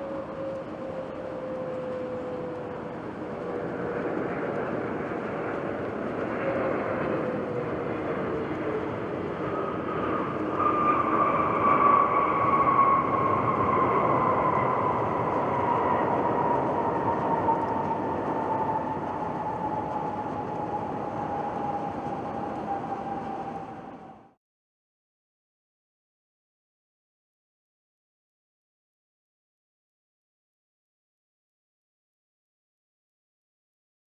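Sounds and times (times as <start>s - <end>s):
jet airliner taking off: 0.0s - 24.4s.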